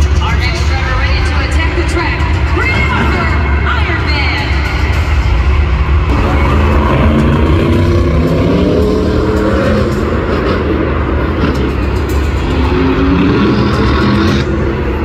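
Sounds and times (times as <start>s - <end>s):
monster truck engine revving: 4.8s - 15.0s.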